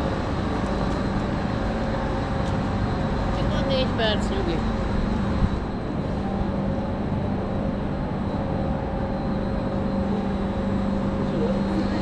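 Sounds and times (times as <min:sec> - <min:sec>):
train low hum: 0:00.0 - 0:12.0.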